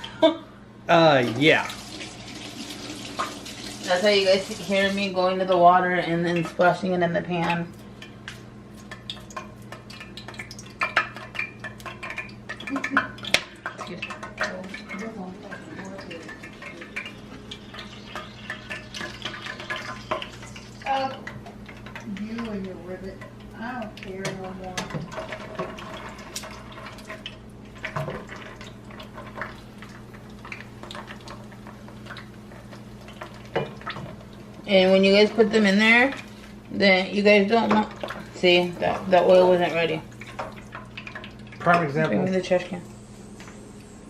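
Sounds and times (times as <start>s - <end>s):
oil crackling in a frying pan: 1.1s - 44.0s
steady low hum: 3.8s - 44.0s
dishes and pans clattering: 8.9s - 20.4s.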